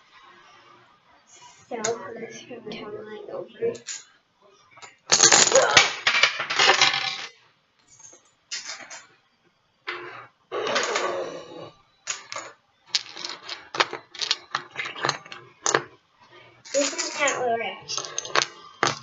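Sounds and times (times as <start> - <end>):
dominoes clattering and clicking: 3.8 - 4.1, 4.9 - 9.1, 10.6 - 15.9, 16.7 - 19.0.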